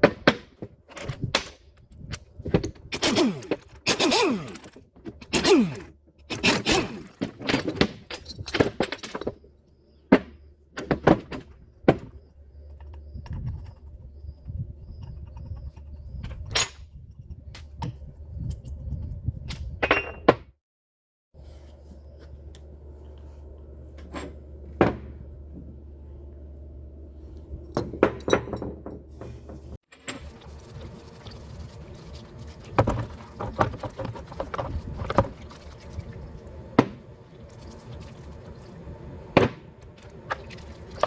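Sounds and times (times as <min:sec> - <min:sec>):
steady low hum: 0:21.4 - 0:28.2.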